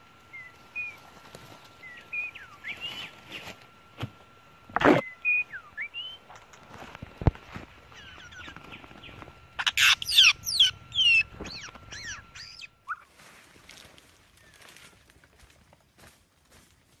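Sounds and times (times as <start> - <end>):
bird singing: 0.2 - 1.1, 1.7 - 3.5, 4.9 - 6.4, 7.8 - 13.1.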